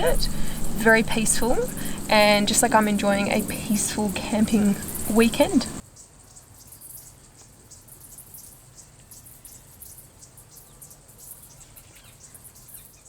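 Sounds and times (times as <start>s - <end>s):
faint low rumble: 0.0s - 5.8s
insects chirping: 0.0s - 7.1s.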